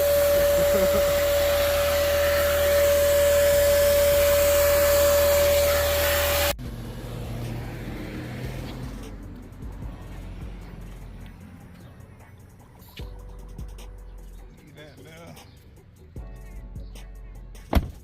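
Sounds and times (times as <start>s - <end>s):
vacuum cleaner whine: 0.0s - 6.6s.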